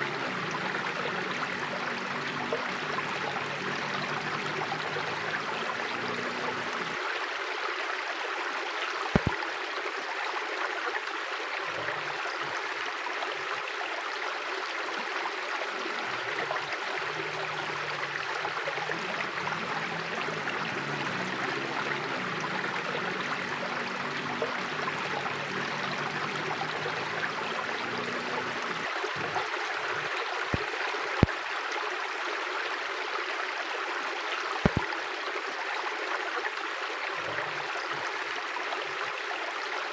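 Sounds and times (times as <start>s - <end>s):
river water rushing: 0.0s - 32.4s
sharp clicks: 9.2s - 9.4s.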